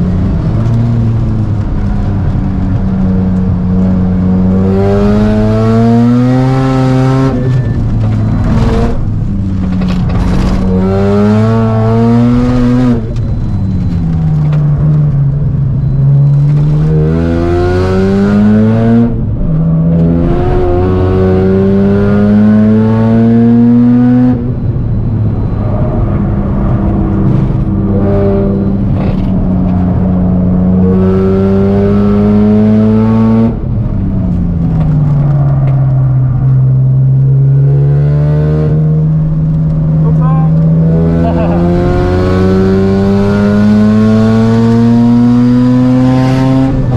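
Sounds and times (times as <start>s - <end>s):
rotary car engine revving: 0.0s - 46.9s.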